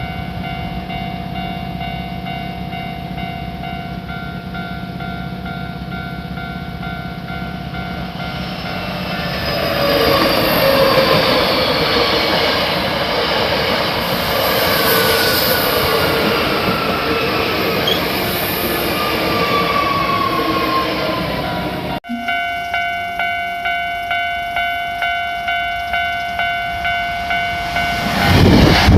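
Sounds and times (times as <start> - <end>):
train running past: 0.0 - 28.9
high whines falling in pitch: 7.9 - 22.4.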